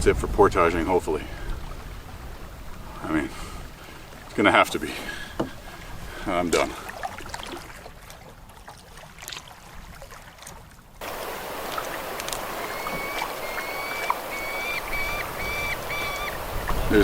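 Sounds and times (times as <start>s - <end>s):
light water splashes: 0.0s - 17.0s
water and canoe noise: 0.0s - 17.0s
falcons calling: 1.2s - 6.6s, 11.0s - 17.0s.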